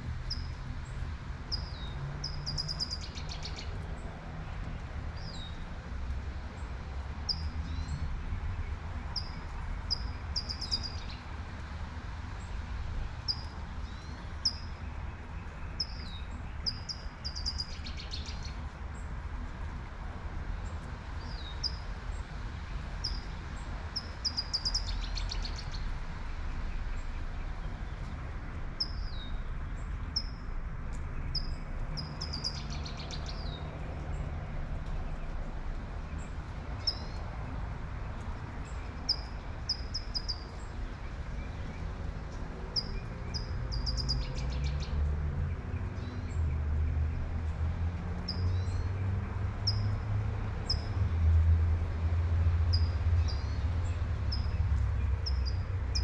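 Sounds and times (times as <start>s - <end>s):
traffic rumble: 0.0s - 56.0s
birds chirping: 31.2s - 34.1s, 52.7s - 56.0s.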